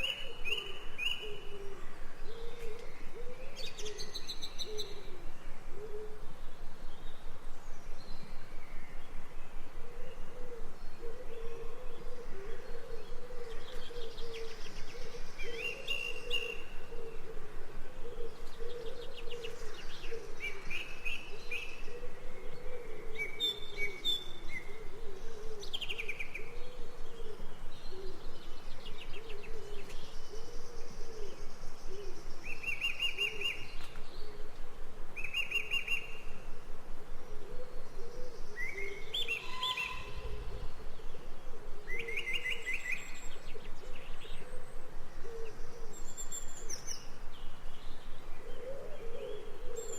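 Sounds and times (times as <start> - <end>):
birds chirping and trilling: 35.2 - 49.9.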